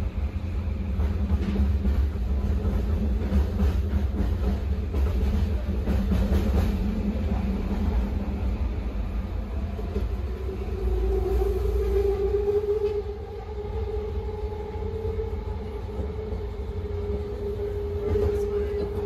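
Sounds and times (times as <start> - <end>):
train low rumble: 0.0 - 19.0
train steady whine: 0.0 - 19.0.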